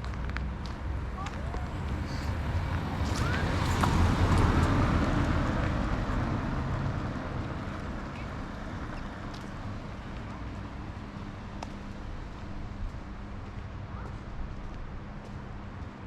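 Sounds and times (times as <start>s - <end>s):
road vehicle passing: 0.5s - 15.7s.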